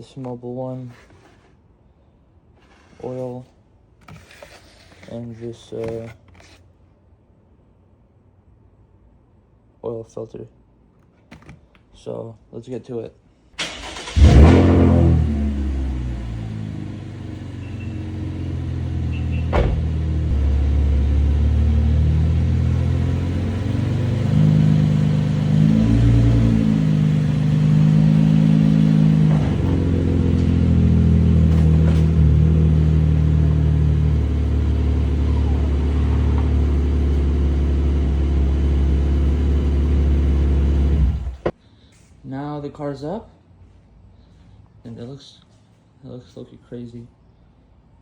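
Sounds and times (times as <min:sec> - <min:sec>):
car engine running at low speed: 0:14.1 - 0:41.5.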